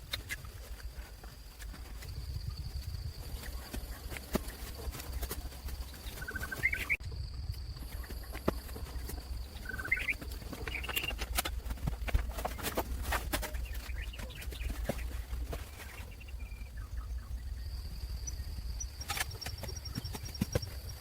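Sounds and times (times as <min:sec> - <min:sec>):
bird chirps: 0:04.4 - 0:07.0, 0:07.8 - 0:11.2, 0:12.4 - 0:21.0.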